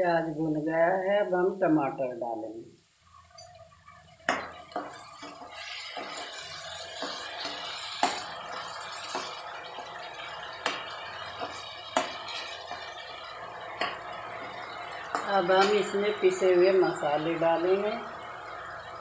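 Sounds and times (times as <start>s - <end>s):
metal ladle knocking pan: 3.9s - 17.0s.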